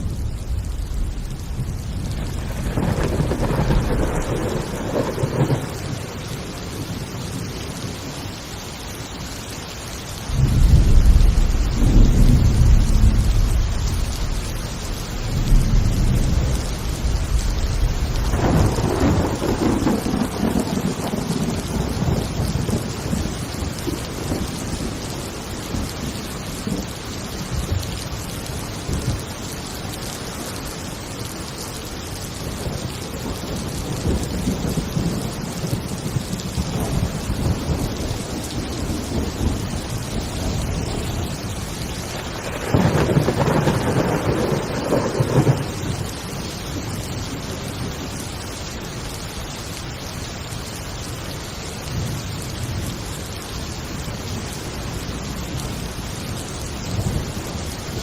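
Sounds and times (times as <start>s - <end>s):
loud thunder clap: 0.0s - 6.0s, 10.3s - 14.4s, 15.3s - 22.9s, 42.3s - 46.0s
thunder rumbling: 0.0s - 8.4s, 10.2s - 49.7s
heavy rain falling: 0.0s - 58.0s.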